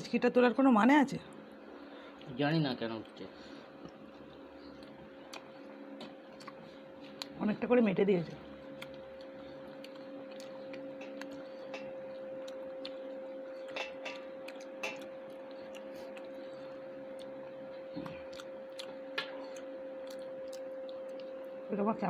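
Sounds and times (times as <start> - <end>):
steady low hum: 0.0 - 22.0
chewing smacks: 3.8 - 7.4, 8.2 - 21.5.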